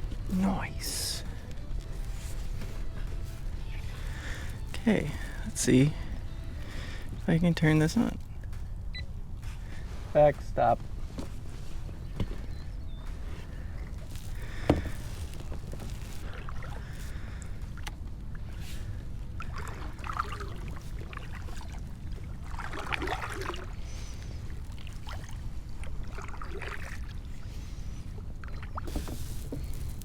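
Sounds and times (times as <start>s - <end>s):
steady low rumble: 0.0s - 28.5s
paddle splashing in water: 13.2s - 18.8s, 19.4s - 29.9s.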